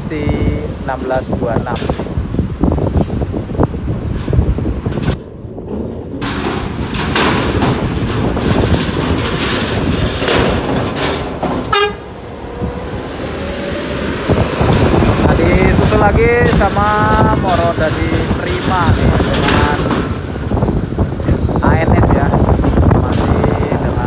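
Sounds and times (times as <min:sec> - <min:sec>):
diesel buses passing: 0:00.0 - 0:24.0
faint horn: 0:11.7 - 0:12.1.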